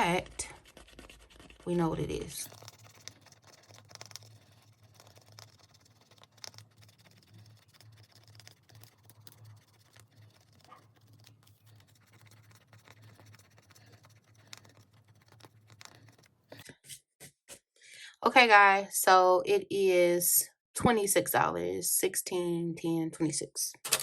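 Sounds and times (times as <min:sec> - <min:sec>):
rapid scratching of paper: 0:00.0 - 0:17.5.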